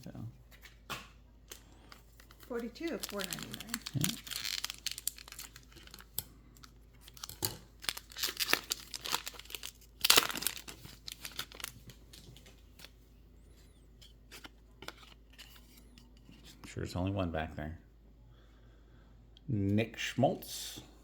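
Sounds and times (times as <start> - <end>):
foil wrapper tearing and crinkling: 1.8 - 12.3.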